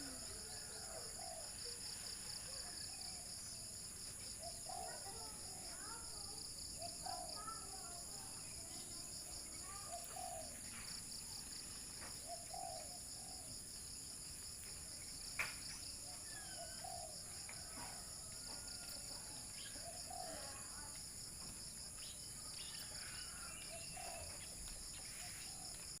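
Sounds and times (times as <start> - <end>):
dove cooing: 0.0 - 1.8, 9.7 - 10.5, 12.2 - 13.5, 16.4 - 18.1, 19.8 - 20.7, 23.3 - 24.4
small birds chirping: 0.0 - 26.0.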